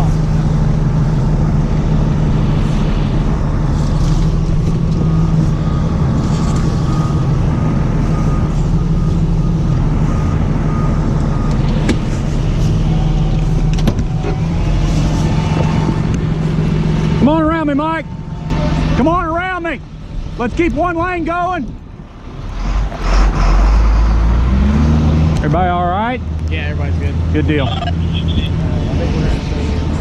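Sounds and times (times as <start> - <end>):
tow truck engine idling: 0.0 - 20.2.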